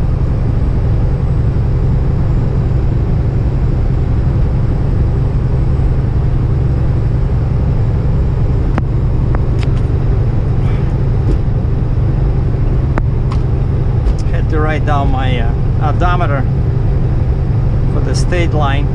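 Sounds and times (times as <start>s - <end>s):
truck engine drone: 0.0s - 18.9s
road noise: 7.4s - 18.9s.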